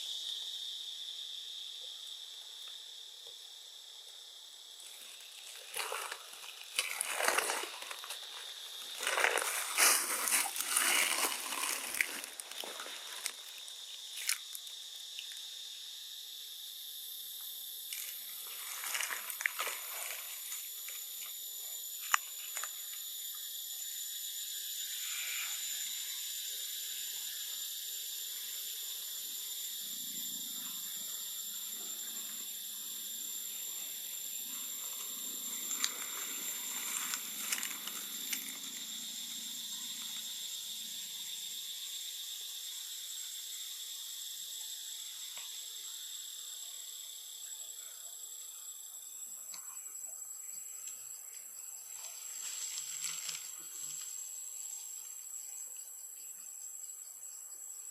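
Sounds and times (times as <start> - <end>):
insects droning: 0.0 - 57.9.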